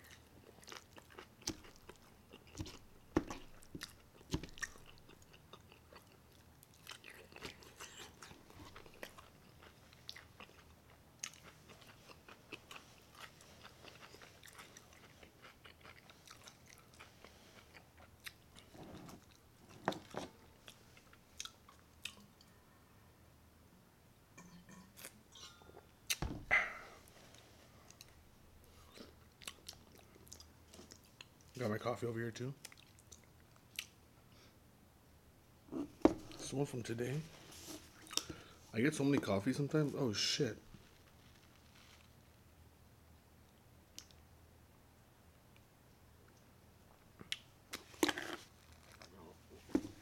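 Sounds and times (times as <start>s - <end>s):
person chewing food: 0.0s - 22.4s, 25.0s - 31.5s, 32.6s - 34.0s, 37.7s - 38.6s, 46.3s - 50.0s.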